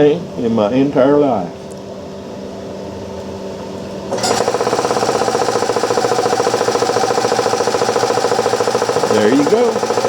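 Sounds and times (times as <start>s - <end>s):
steady hum: 0.0s - 10.0s
compressor piston chugging: 4.1s - 10.0s.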